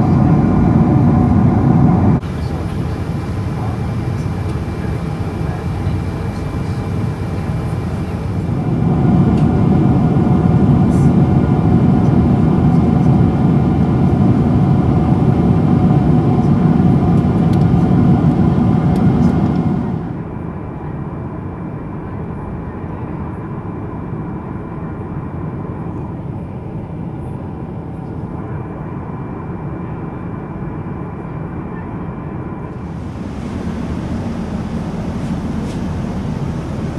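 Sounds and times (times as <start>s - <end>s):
jet engine cabin rumble: 0.0s - 20.3s, 32.6s - 36.9s.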